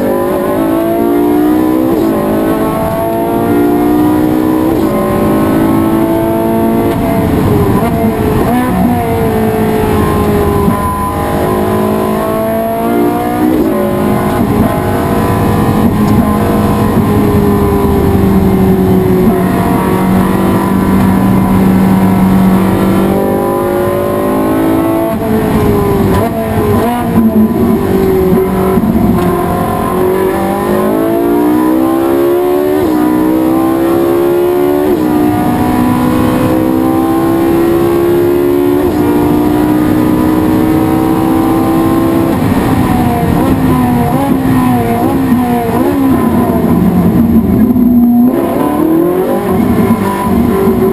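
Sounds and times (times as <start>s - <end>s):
race car engine accelerating: 0.0s - 50.9s.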